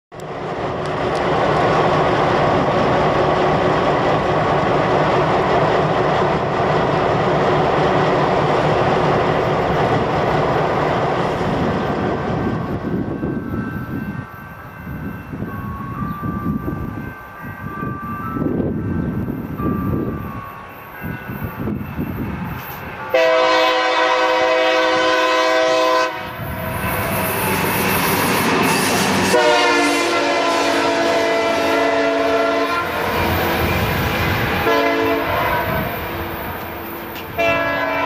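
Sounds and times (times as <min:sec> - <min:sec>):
distant train approaching: 0:00.1 - 0:38.0
train running noise: 0:00.1 - 0:38.0
wind rumble on microphone: 0:11.2 - 0:23.0.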